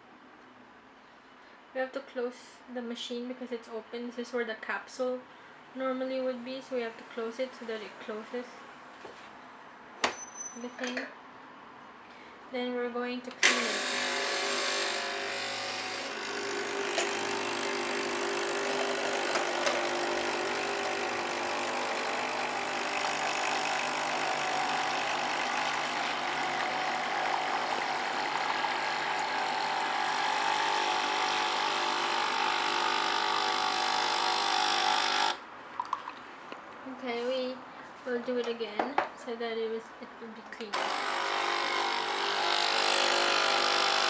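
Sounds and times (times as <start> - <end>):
coffee machine pump running: 13.4 - 35.4, 40.8 - 44.0.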